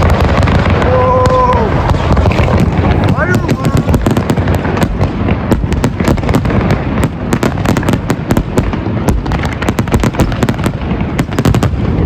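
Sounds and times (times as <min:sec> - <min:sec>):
fireworks cracking and popping: 0:00.0 - 0:12.0
rumble of fireworks booms: 0:00.0 - 0:12.0.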